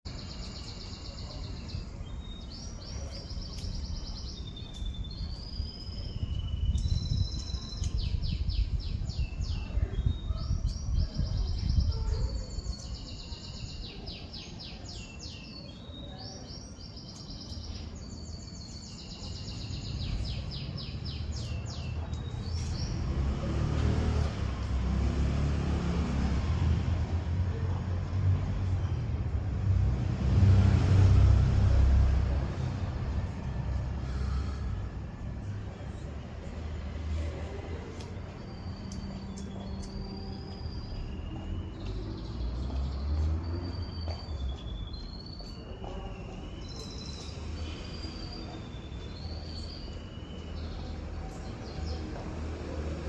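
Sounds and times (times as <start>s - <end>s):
songbird singing trills: 0.1s - 23.4s, 37.4s - 52.2s.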